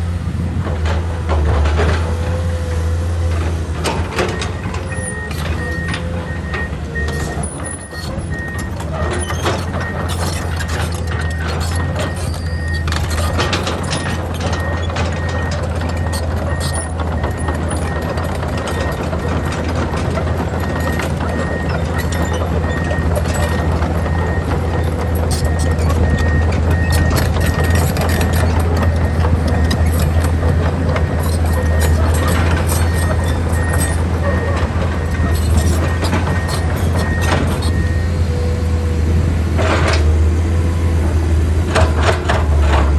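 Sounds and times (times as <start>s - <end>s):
excavator diesel engine running: 0.0s - 42.9s
clanks and knocks: 3.3s - 38.8s, 41.7s - 42.9s.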